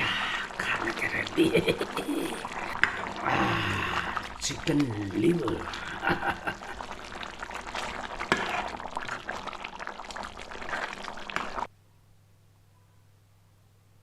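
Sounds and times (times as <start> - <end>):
curry bubbling in a pot: 0.0 - 11.7.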